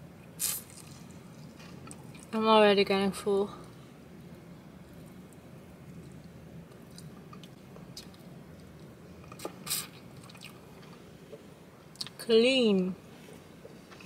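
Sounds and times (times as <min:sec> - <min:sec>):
person chewing and sucking: 0:05.0 - 0:10.9.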